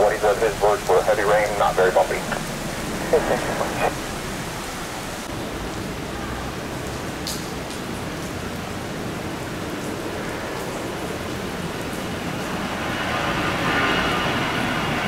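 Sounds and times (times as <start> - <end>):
jet engine roar: 0.0 - 5.3, 12.0 - 15.0
heavy rain: 0.0 - 15.0.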